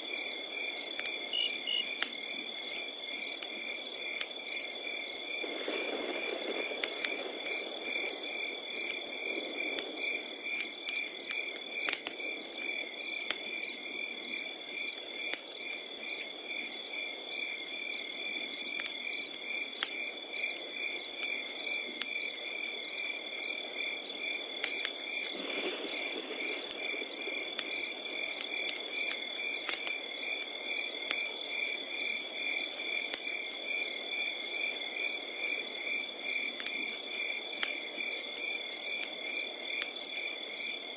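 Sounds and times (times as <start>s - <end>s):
crickets chirping: 0.0s - 40.9s
wood fire crackling and popping: 0.0s - 40.9s
high insect trill: 0.2s - 6.6s.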